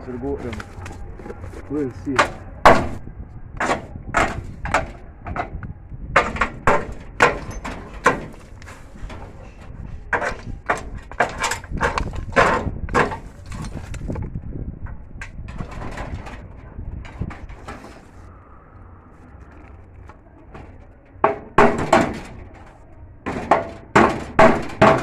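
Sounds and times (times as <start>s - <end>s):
sharp knocks: 6.2s - 8.4s, 21.2s - 22.4s, 23.3s - 25.0s.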